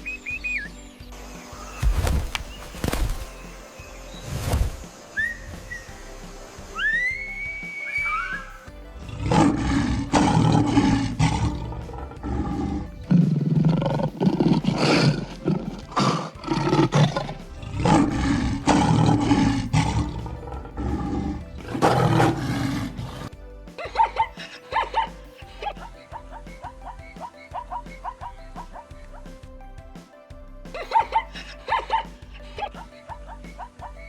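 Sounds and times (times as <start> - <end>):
whistling chirps: 0.0 - 1.0, 1.7 - 5.9, 6.8 - 8.7
big cat roaring: 9.0 - 23.3.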